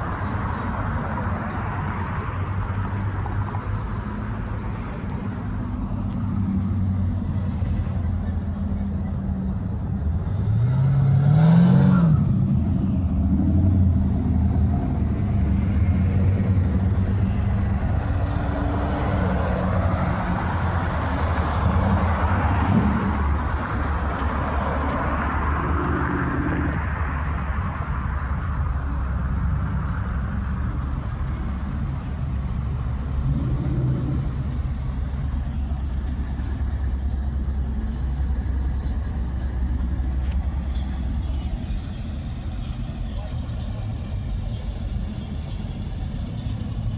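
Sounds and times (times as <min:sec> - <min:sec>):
car engine running: 0:30.3 - 0:46.9.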